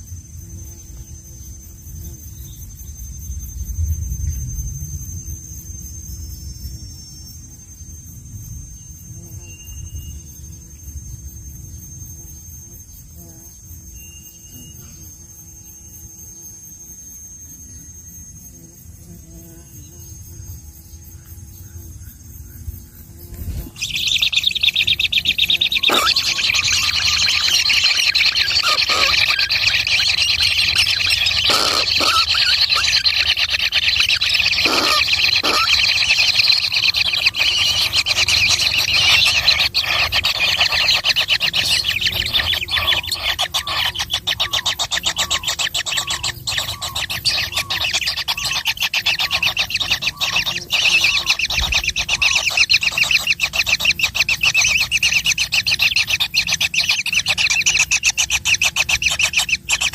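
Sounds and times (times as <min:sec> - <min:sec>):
baby birds begging calls: 0:23.5 - 0:59.9.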